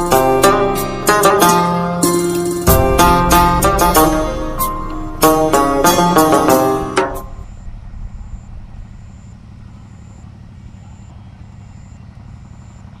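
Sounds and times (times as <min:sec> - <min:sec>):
low steady rumble: 0:02.4 - 0:13.0.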